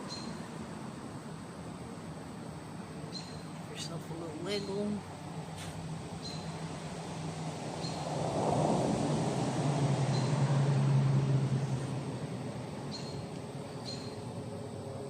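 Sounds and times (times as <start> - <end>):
vehicle passing by: 3.3 - 15.0.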